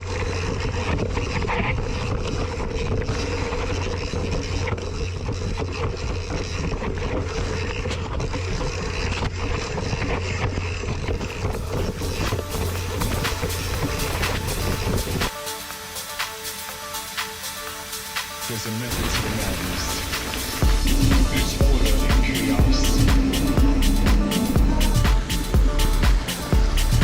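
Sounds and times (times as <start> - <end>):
bike rumbling over rough trail: 0.0 - 15.3
bike rattling and knocking: 0.4 - 15.3
wind on microphone: 11.0 - 15.3.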